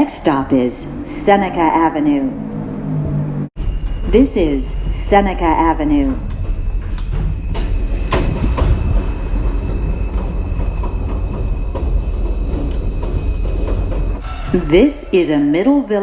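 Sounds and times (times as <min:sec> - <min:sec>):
subway train rumble: 0:00.0 - 0:16.0
wheels clicking over rail joints: 0:06.2 - 0:14.4.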